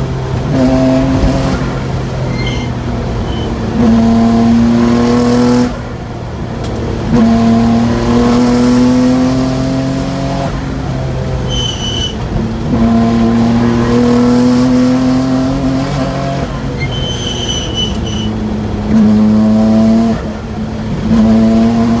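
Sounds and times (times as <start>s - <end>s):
car engine revving under load: 0.0s - 22.0s
high whistle: 2.2s - 3.6s, 11.5s - 12.2s.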